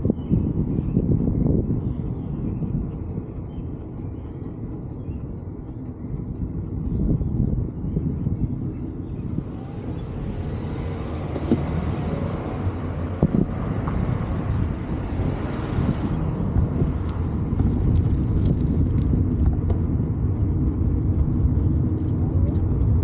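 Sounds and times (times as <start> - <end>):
wind and road noise: 0.0 - 23.0
car passing with tyre hiss: 9.6 - 17.2.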